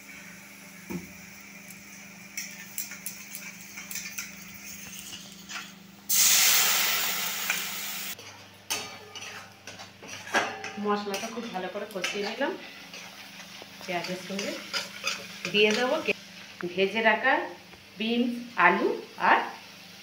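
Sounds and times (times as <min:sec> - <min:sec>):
onions frying in oil: 0:00.0 - 0:20.0
loud sudden sizzle: 0:06.0 - 0:08.2
metal spatula scraping pan: 0:08.2 - 0:16.0.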